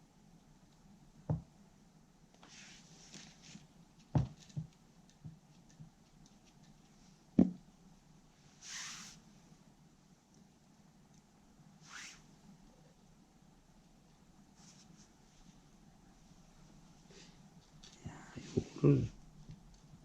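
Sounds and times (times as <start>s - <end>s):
sharp knocks and light taps: 1.3s - 1.5s, 7.4s - 7.6s.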